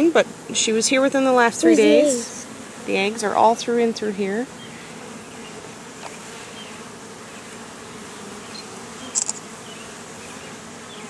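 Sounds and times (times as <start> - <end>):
honeybees buzzing: 0.0 - 11.0
sharp clicks: 9.1 - 9.4.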